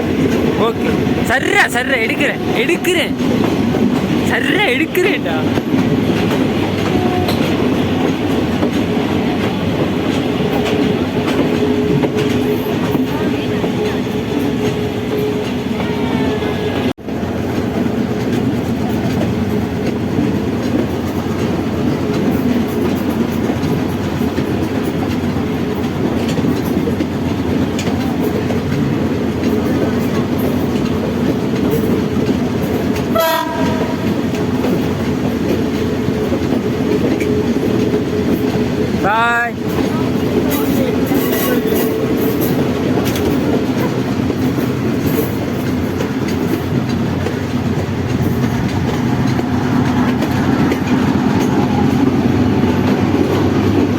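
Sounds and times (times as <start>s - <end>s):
train rumble and wheel clatter: 0.0s - 53.9s
train horn: 6.8s - 7.6s, 33.1s - 34.3s.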